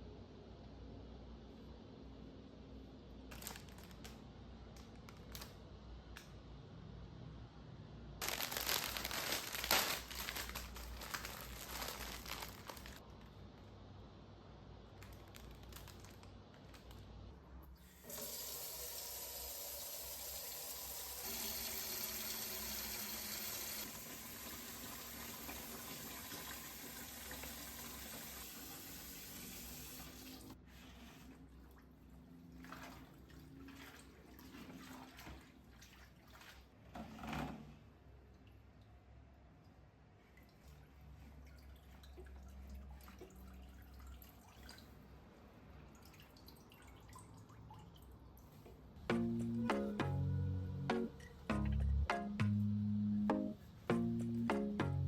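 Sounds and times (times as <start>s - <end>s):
rustling and handling noises: 3.2s - 6.3s, 8.2s - 13.8s, 14.8s - 17.4s
tap water running: 17.8s - 30.6s.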